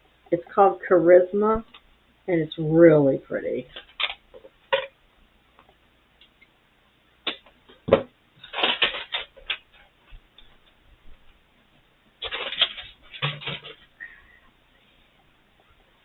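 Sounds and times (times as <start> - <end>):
packaging rustling and crinkling: 8.4 - 9.9, 12.2 - 13.9.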